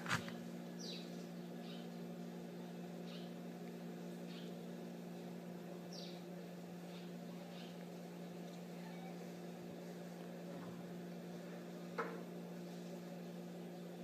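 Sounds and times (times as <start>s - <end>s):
faint high bird chirps: 0.8s - 2.0s, 2.6s - 3.4s, 4.3s - 4.6s, 5.9s - 6.3s.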